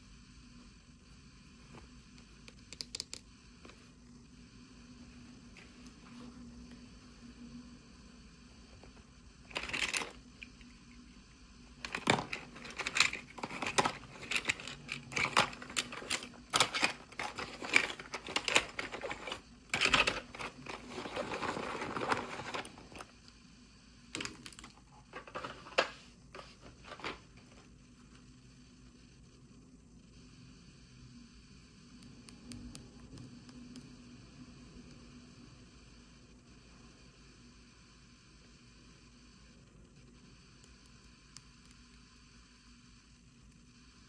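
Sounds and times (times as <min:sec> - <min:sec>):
plastic pieces clicking: 0:11.8 - 0:22.8
plastic packaging rustling: 0:11.8 - 0:23.0.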